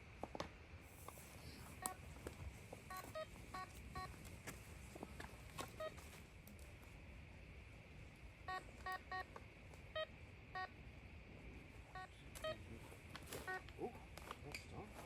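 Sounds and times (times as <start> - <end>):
metal detector beeps: 2.9 - 4.1, 5.8 - 6.0, 12.0 - 12.7, 13.4 - 13.7.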